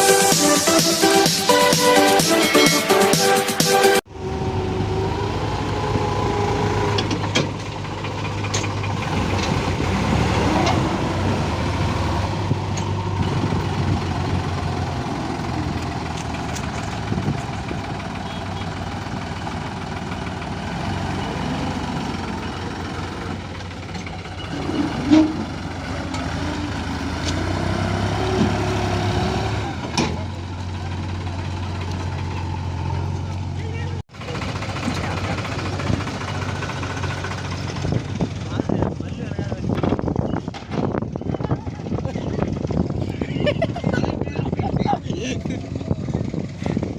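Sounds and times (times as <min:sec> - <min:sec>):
diesel engines running: 0:00.0 - 0:46.9.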